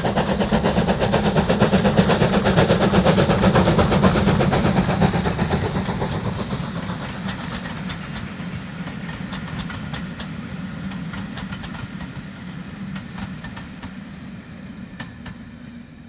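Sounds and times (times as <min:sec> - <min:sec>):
train rumbling: 0:00.0 - 0:16.0
wheels clicking over rail joints: 0:03.8 - 0:12.2.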